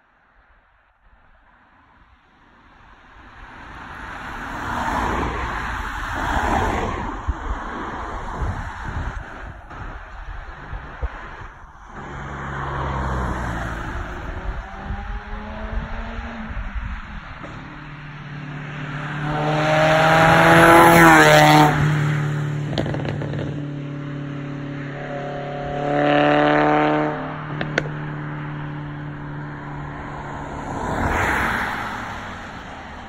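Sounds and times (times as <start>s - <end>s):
car passing with tyre noise: 0.2s - 33.0s
car engine revving hard: 18.9s - 23.6s, 25.1s - 27.9s.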